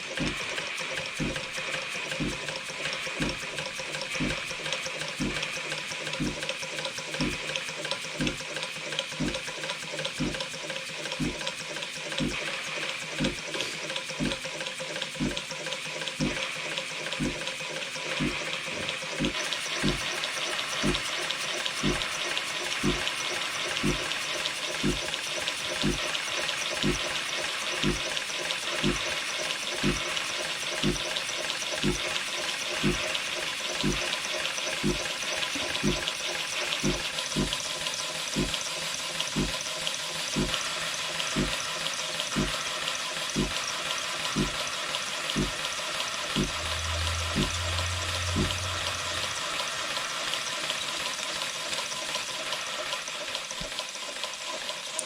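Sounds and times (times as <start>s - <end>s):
steam engine low knock: 0.0s - 7.5s, 8.2s - 8.4s, 9.2s - 9.4s, 10.1s - 10.5s, 11.1s - 11.5s, 12.1s - 12.4s, 13.2s - 13.6s, 14.2s - 14.4s, 15.1s - 15.5s, 16.2s - 16.5s, 17.1s - 17.5s, 18.1s - 20.1s, 20.8s - 21.1s, 21.8s - 22.1s, 22.8s - 23.2s, 23.8s - 24.2s, 24.8s - 25.1s, 25.8s - 26.1s, 26.8s - 27.1s, 27.8s - 28.1s, 28.7s - 29.1s, 29.8s - 30.1s, 30.8s - 31.1s, 31.8s - 32.1s, 32.8s - 33.1s, 33.8s - 34.1s, 34.8s - 36.1s, 36.7s - 37.6s, 38.4s - 38.6s, 39.4s - 39.6s, 40.4s - 40.6s, 41.4s - 41.6s, 42.3s - 42.6s, 43.4s - 43.6s, 44.4s - 44.6s, 45.4s - 45.6s, 46.3s - 49.5s.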